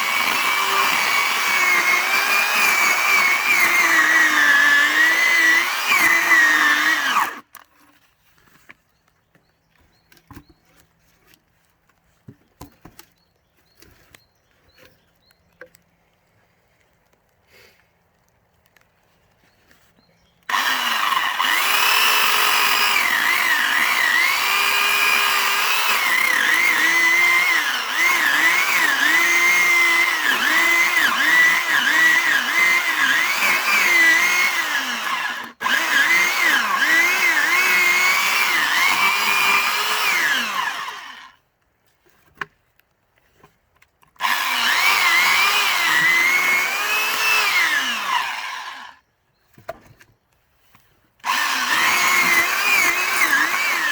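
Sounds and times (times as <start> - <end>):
electric saw cutting log: 0.0 - 7.6, 20.5 - 41.4, 44.2 - 49.0, 51.2 - 53.9.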